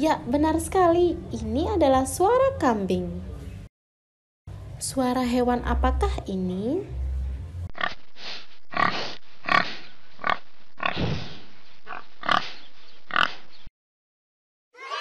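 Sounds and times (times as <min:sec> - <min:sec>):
pig grunting: 0:08.7 - 0:13.5.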